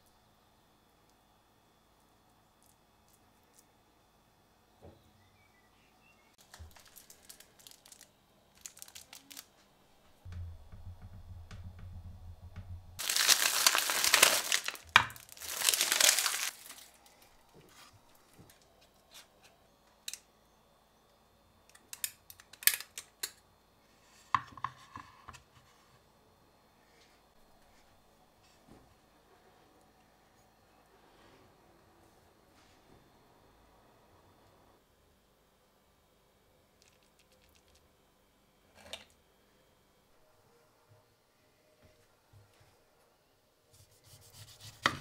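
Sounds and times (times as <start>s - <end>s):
paper tearing and crumpling: 6.4s - 9.5s, 13.0s - 17.0s.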